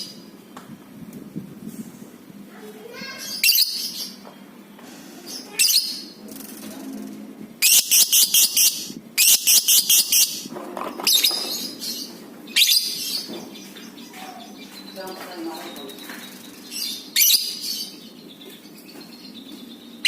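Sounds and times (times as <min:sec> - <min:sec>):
rapid piercing bird chatter: 0:02.5 - 0:20.0
bird shrill chirps: 0:03.1 - 0:04.2, 0:07.6 - 0:10.5, 0:11.1 - 0:20.0.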